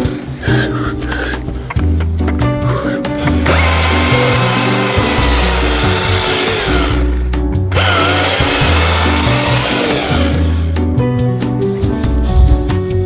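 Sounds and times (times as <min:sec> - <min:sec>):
background music: 0:00.0 - 0:13.0
chainsaw cutting wood: 0:03.2 - 0:10.7.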